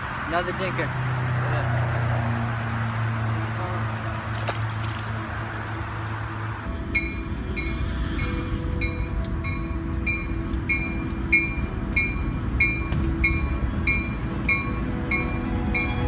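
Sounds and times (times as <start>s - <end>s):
train rumbling past: 5.4s - 16.0s.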